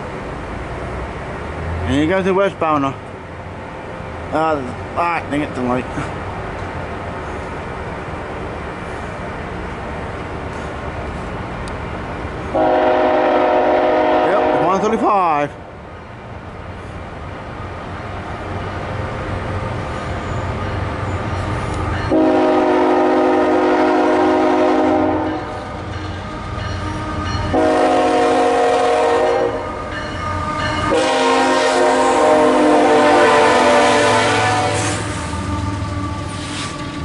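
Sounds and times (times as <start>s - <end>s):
train rumbling: 0.0s - 37.0s
locomotive horn blasts: 12.5s - 14.9s, 22.1s - 25.6s, 27.5s - 29.7s, 30.8s - 35.7s.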